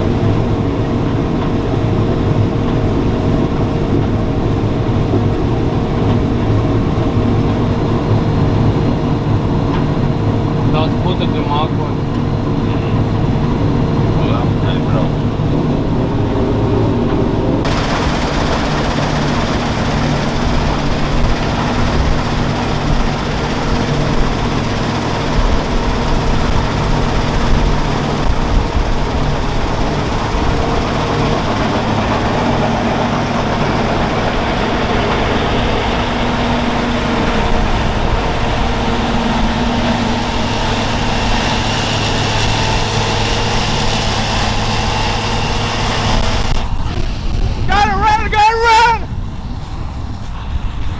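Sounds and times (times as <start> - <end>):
constant rushing noise: 0.0 - 50.9
farm machine engine running: 16.8 - 46.8.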